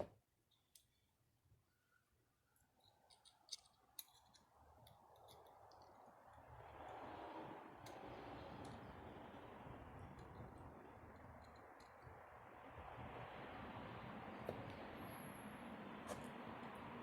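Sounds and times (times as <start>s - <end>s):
light clicks of small parts: 0.4s - 1.1s, 2.6s - 7.0s, 10.0s - 12.2s
soft steady rushing noise: 4.0s - 17.0s.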